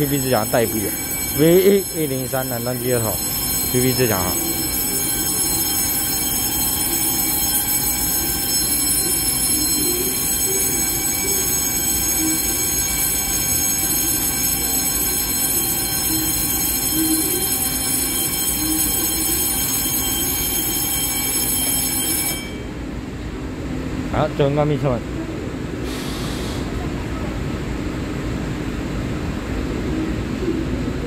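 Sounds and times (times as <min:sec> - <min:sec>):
faint high whines: 0:00.0 - 0:22.8
electric trains rumbling: 0:00.0 - 0:24.1.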